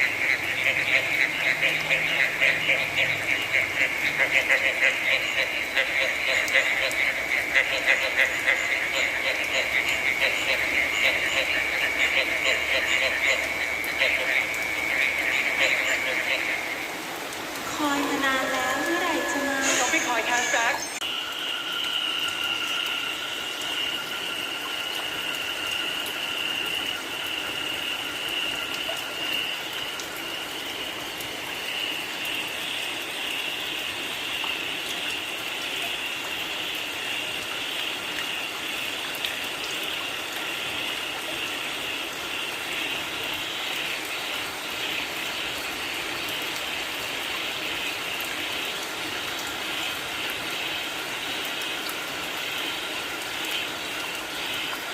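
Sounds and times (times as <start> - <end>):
frogs calling in high trill: 0.0 - 17.0, 17.7 - 54.8
lower frog calls: 0.0 - 30.8
steady rain: 0.0 - 54.9.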